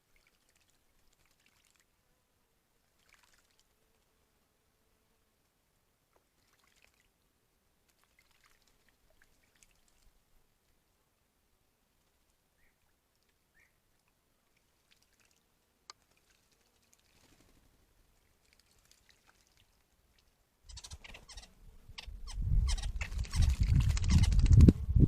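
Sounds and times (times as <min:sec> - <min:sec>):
bird splashing in water: 0:00.2 - 0:01.9, 0:03.0 - 0:03.7, 0:06.3 - 0:07.1, 0:07.9 - 0:10.0, 0:14.5 - 0:20.2, 0:22.7 - 0:24.6
faint bird chirps: 0:12.5 - 0:13.9, 0:20.6 - 0:24.5
wings fluttering: 0:16.0 - 0:17.8, 0:20.7 - 0:24.9.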